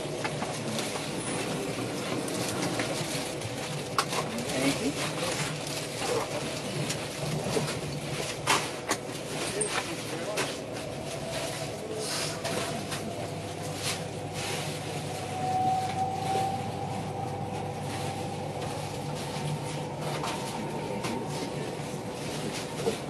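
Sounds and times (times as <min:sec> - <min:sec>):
train carriage running rumble: 0:00.0 - 0:23.0
faint rising whine: 0:10.6 - 0:23.0.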